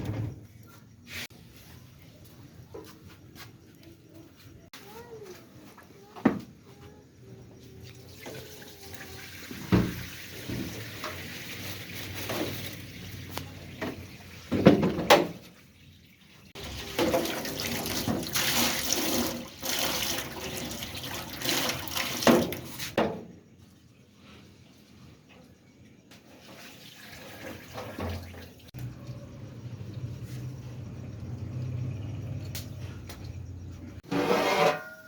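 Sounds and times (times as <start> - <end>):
water pouring into a pot: 7.9 - 13.2, 16.2 - 22.8, 26.5 - 28.7.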